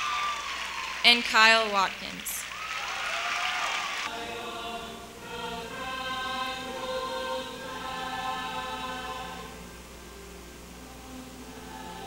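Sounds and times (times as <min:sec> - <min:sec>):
slow held music chords: 0:04.1 - 0:12.0.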